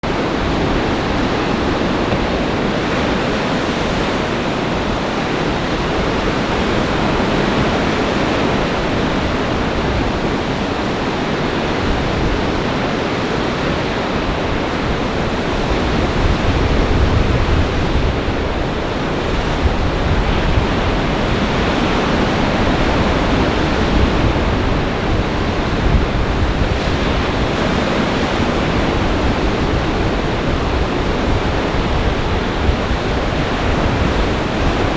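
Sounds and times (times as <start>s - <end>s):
strong wind: 0.0s - 34.9s
surf waves breaking: 0.0s - 34.9s
wind buffeting microphone: 0.0s - 34.9s.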